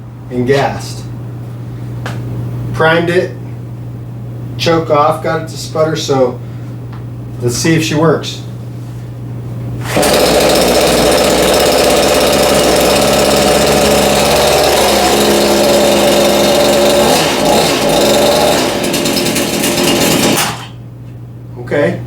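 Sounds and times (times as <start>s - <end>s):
chainsaw engine running: 9.8s - 20.8s.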